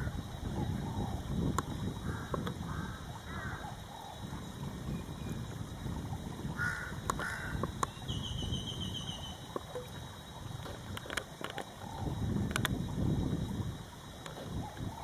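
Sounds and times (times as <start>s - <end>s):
bird calls: 2.0s - 12.7s
bird high trill: 6.6s - 9.5s.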